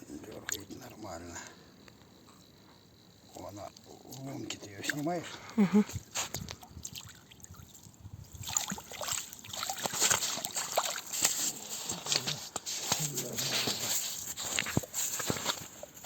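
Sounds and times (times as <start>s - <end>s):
crackling splashes: 0.2s - 0.9s, 3.1s - 16.0s
water splashing and trickling: 3.4s - 5.5s, 6.2s - 12.4s.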